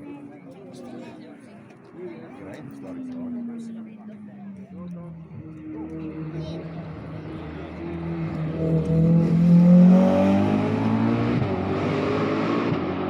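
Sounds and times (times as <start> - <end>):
rally car engine passing by: 5.8 - 13.0.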